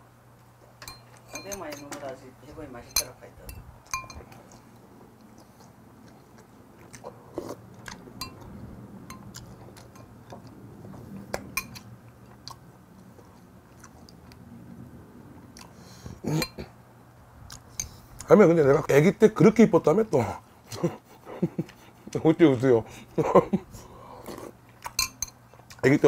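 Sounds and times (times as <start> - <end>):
metal spoon clicking on bowl: 2.9 - 4.2
person chewing food: 3.8 - 14.5, 15.4 - 16.7, 17.4 - 18.3, 20.7 - 22.2, 23.8 - 25.9.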